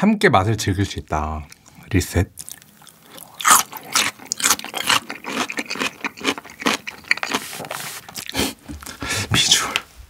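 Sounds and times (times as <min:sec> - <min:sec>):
chewing crunchy radish: 0:01.4 - 0:09.0.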